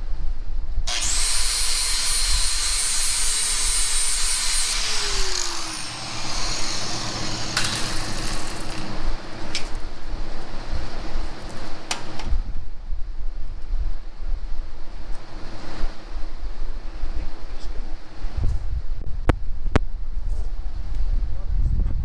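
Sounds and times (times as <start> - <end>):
angle grinder motor whining: 0.9 - 9.8
loud grinding noise: 0.9 - 9.9.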